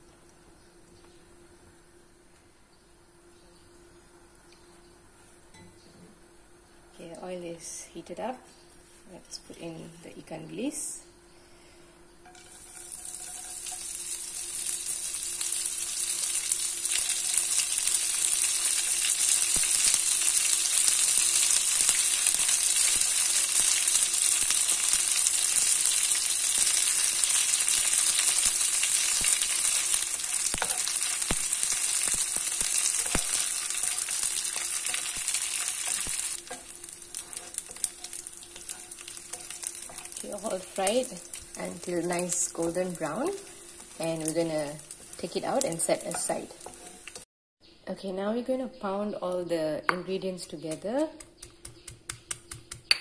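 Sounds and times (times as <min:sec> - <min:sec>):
faint steady hum: 0:00.0 - 0:51.6
fish sizzling in hot oil: 0:12.4 - 0:47.3
stirring clicks: 0:32.0 - 0:42.4.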